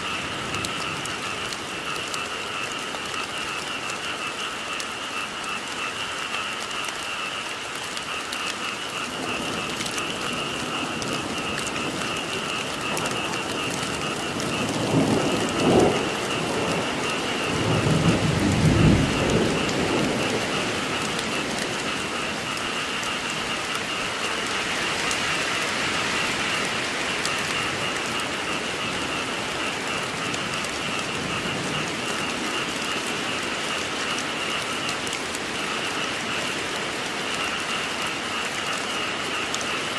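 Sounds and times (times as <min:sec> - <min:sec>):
rain pattering: 0:00.0 - 0:39.9
thunder rumbling: 0:08.9 - 0:36.5.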